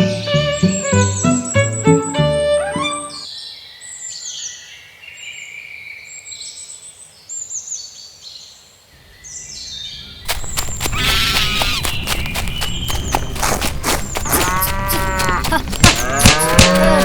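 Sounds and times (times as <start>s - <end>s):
background music: 0.0s - 3.3s
birds chirping: 9.0s - 17.0s.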